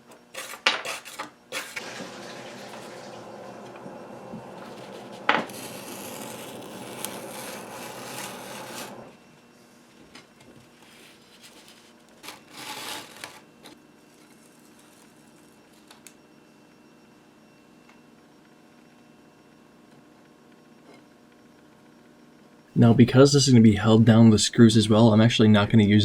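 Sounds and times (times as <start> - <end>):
scraping rub on wood: 4.6 - 9.1, 10.8 - 13.4.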